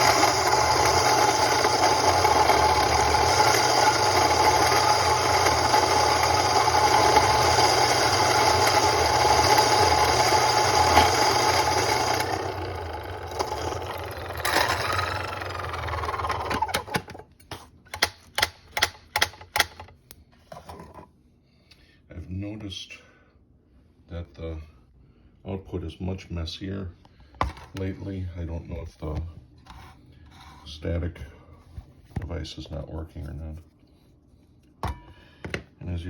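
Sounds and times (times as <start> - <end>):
coffee grinder grinding beans: 0.0 - 17.2.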